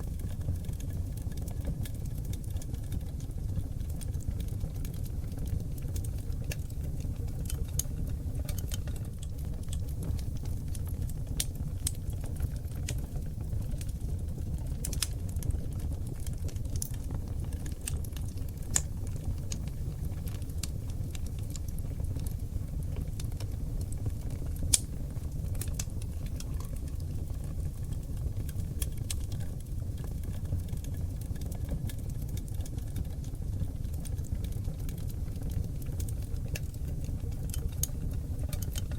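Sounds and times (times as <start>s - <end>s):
logs crackling in fireplace: 0.0s - 38.9s
low rumble of flames: 0.0s - 38.9s.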